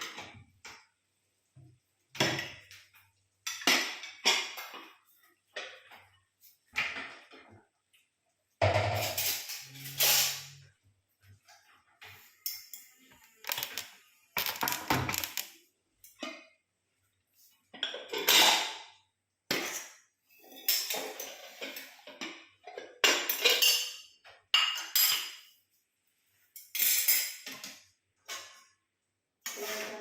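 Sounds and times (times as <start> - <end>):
metal utensil scraping a pan: 8.8 - 10.7.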